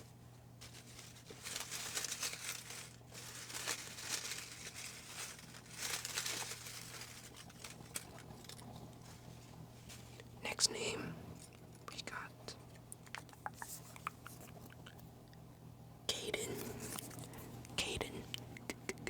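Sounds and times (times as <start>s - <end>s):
paper slips rustling in a hat: 0.6s - 10.2s.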